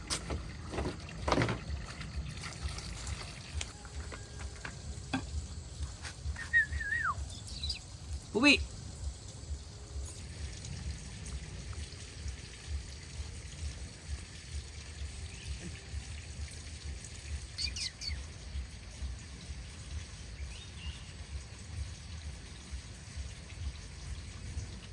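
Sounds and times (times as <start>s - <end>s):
bird chirping: 6.3s - 7.9s, 17.6s - 18.3s.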